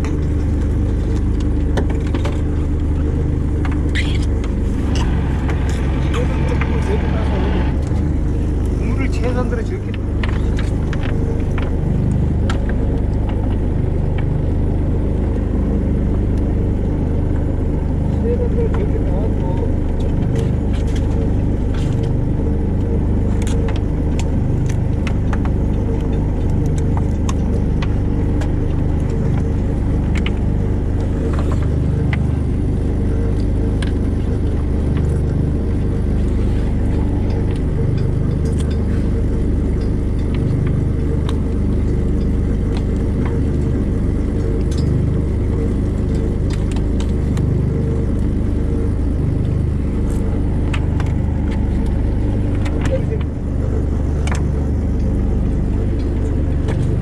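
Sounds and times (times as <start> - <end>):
boat engine rumbling: 0.0 - 57.0
gear clicking and clinking: 19.9 - 57.0.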